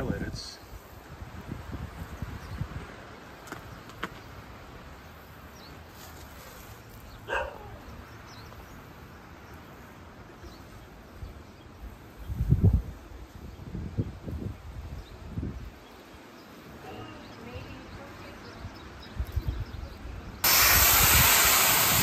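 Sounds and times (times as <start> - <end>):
dog barking: 7.3 - 7.8.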